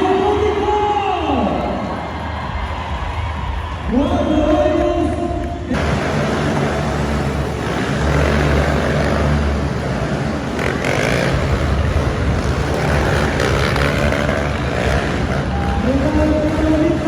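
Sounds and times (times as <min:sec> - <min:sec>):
vehicle engines revving: 0:05.4 - 0:17.0.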